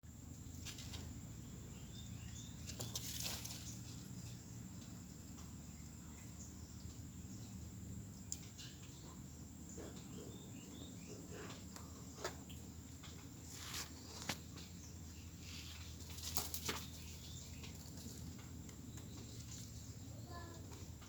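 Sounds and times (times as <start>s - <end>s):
faint scuffling: 13.4s - 18.4s.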